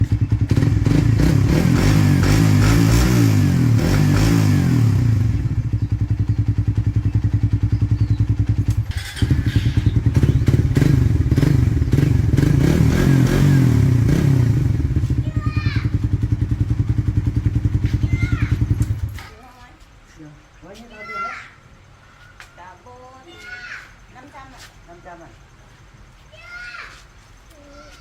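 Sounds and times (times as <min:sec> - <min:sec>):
motorcycle engine revving: 0:00.0 - 0:19.3.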